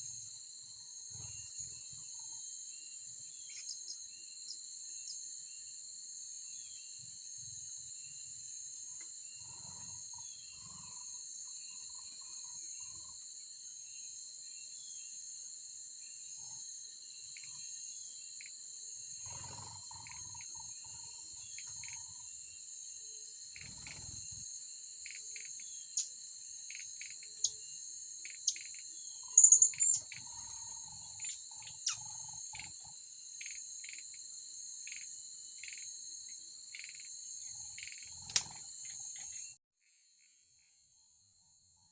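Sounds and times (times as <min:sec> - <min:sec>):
high-pitched insect chorus: 0:00.0 - 0:41.9
sharp bird chirps: 0:28.2 - 0:32.7.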